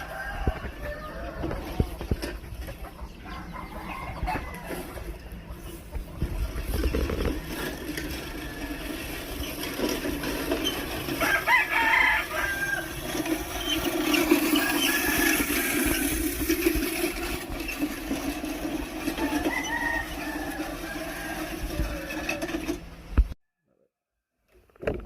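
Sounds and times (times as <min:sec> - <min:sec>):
rooster crowing: 0:00.0 - 0:01.8, 0:03.3 - 0:05.1, 0:11.0 - 0:16.1, 0:19.0 - 0:22.6
chickens clucking: 0:00.0 - 0:23.2.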